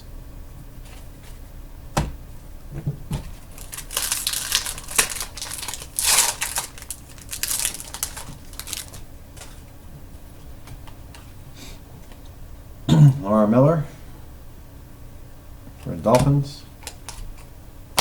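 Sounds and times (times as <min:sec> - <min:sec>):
foil pack tearing: 0:03.4 - 0:09.6
wrapper crinkling: 0:03.4 - 0:09.6.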